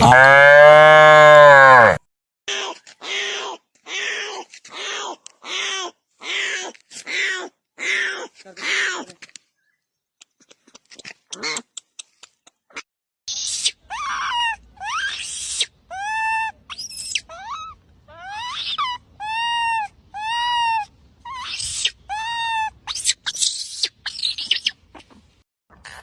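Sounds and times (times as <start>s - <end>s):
young animal crying: 0.0s - 2.0s, 13.4s - 24.4s.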